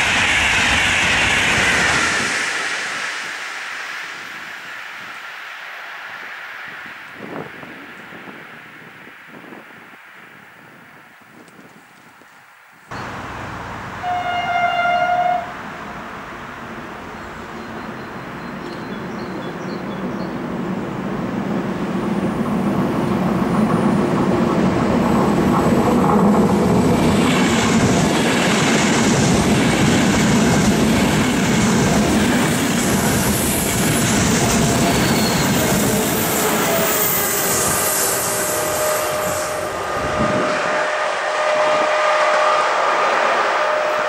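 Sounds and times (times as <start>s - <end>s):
passenger train rumbling past: 0.0s - 11.0s, 12.9s - 44.0s
thin steady squeal: 33.2s - 40.9s.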